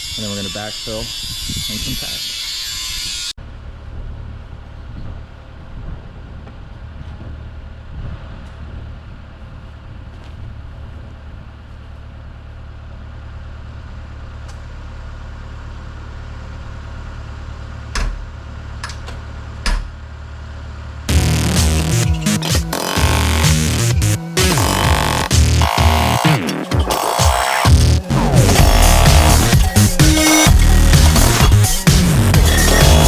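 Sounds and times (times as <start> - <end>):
diesel engine humming: 11.5 - 33.0.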